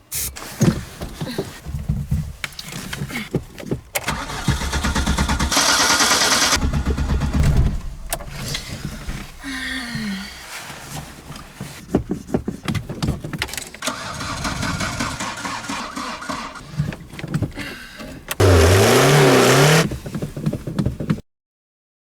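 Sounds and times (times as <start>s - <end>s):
car starter cranking: 4.0s - 9.5s, 13.8s - 17.4s, 18.1s - 20.0s
car engine revving and sputtering: 18.4s - 20.0s.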